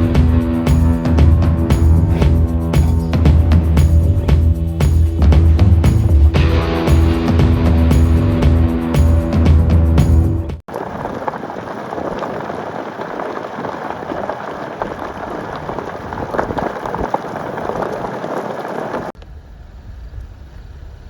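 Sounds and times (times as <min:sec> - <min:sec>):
crackling rush with clicks: 0:00.0 - 0:19.4
low rumble of machinery: 0:19.2 - 0:21.0.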